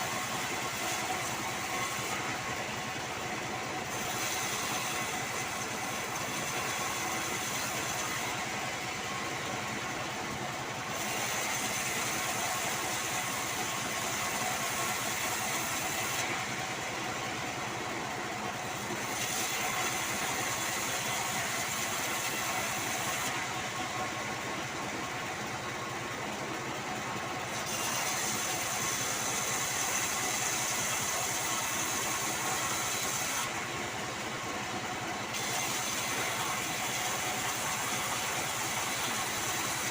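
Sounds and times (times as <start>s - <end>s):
band saw cutting wood: 0.0s - 9.7s, 10.9s - 17.6s, 18.4s - 24.1s, 27.5s - 33.8s, 34.9s - 39.9s.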